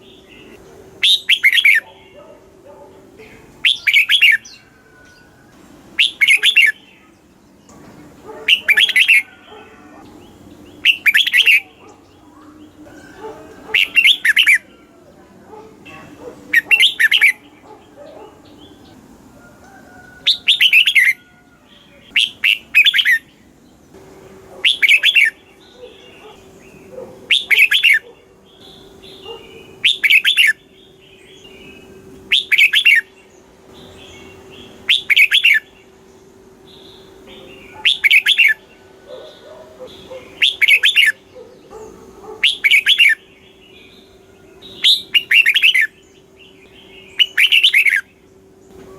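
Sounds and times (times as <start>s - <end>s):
bird singing whistled phrases: 1.0s - 1.9s, 3.6s - 5.3s, 6.0s - 7.2s, 10.8s - 12.7s, 22.1s - 23.2s, 28.6s - 30.6s, 31.6s - 33.1s, 34.9s - 35.7s, 37.3s - 38.6s, 40.4s - 41.2s, 44.7s - 46.0s, 47.0s - 48.1s.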